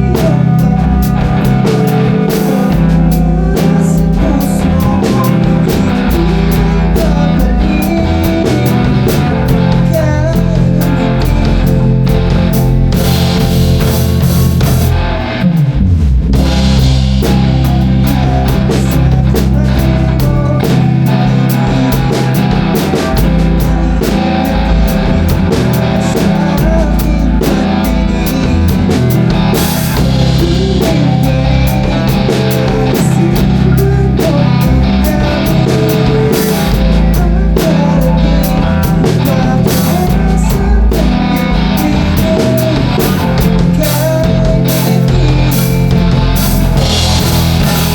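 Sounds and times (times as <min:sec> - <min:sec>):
rock band playing: 0:00.0 - 0:47.9.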